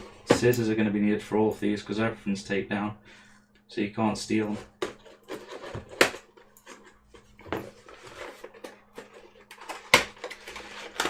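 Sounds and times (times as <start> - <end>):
cardboard scraping and rustling: 4.5 - 11.0.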